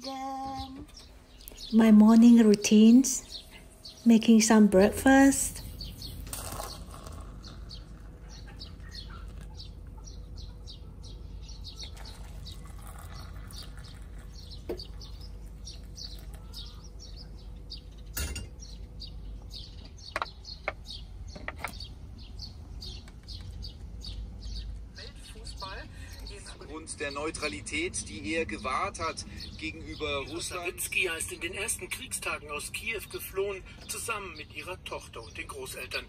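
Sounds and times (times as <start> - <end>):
small birds chirping: 0.0 - 36.0
dishes clinking: 18.1 - 18.6.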